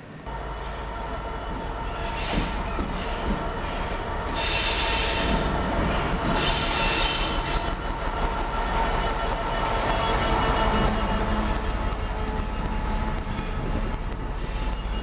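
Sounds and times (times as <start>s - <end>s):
electric train rumbling on rails: 0.0s - 15.0s.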